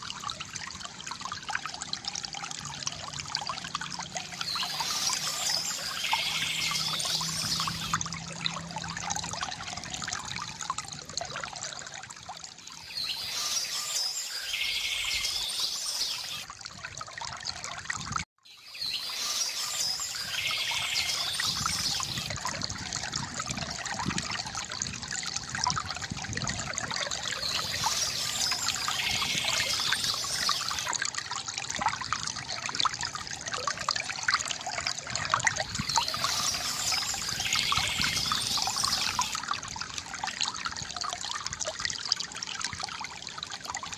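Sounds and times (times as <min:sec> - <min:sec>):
fountain water trickling: 0:00.0 - 0:43.9
birds chirping: 0:04.5 - 0:08.0, 0:35.8 - 0:39.4.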